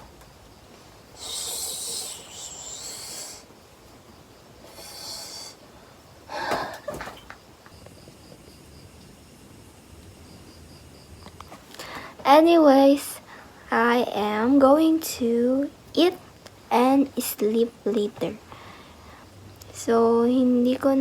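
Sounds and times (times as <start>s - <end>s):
person breathing close: 1.2s - 3.5s, 4.6s - 6.9s.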